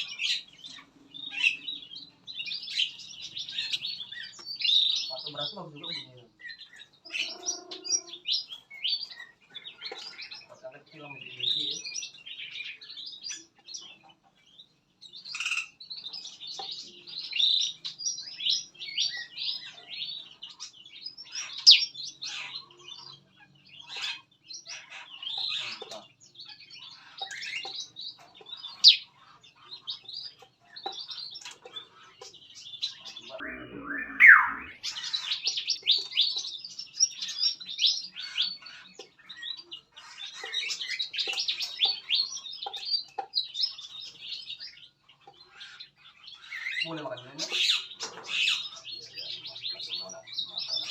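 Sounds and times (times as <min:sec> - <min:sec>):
songbirds chirping and calling: 0:00.0 - 0:50.9
bird call sliding down in pitch: 0:33.4 - 0:34.7.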